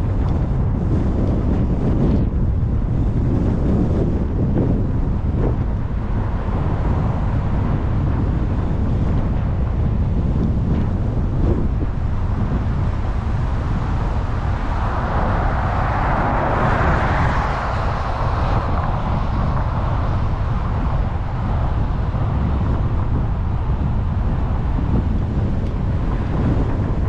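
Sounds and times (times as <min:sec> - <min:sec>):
car road rumble: 0:00.0 - 0:27.0
wind noise: 0:00.0 - 0:27.0
rushing noise: 0:02.6 - 0:27.0.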